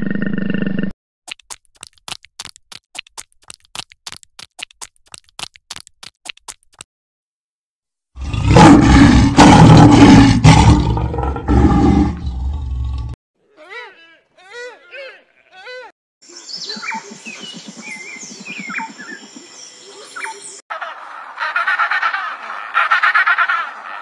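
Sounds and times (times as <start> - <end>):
lioness growling: 8.2 - 13.2.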